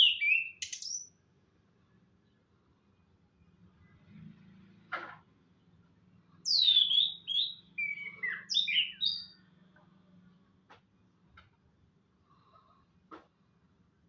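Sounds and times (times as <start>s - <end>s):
thrush singing whistled notes: 0.0s - 1.1s, 6.5s - 9.4s.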